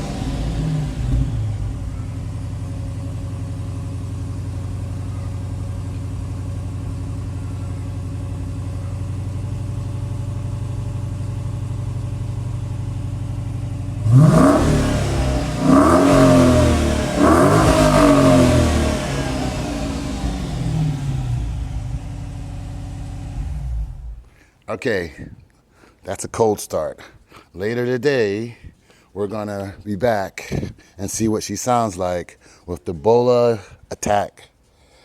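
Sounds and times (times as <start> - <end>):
car engine idling and revving: 0.0 - 24.3.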